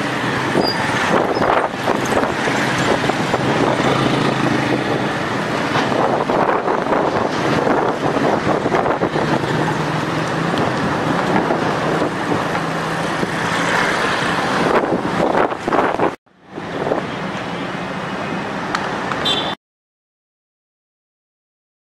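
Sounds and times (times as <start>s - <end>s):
gusting wind buffeting microphone: 0.2s - 17.1s.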